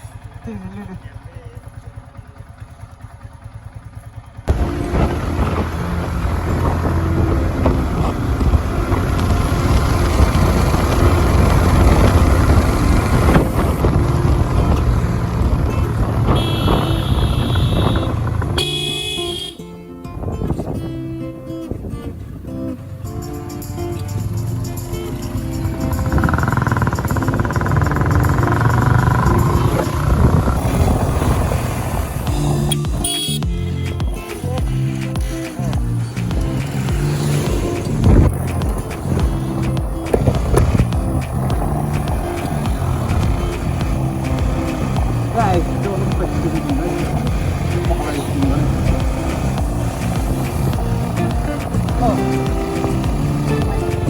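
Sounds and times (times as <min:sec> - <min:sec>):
motorcycle engine running: 0:00.0 - 0:19.7, 0:20.3 - 0:54.0
wind on microphone: 0:04.5 - 0:18.6, 0:25.8 - 0:33.1, 0:36.4 - 0:45.4
knocks from rough track: 0:35.2 - 0:54.0.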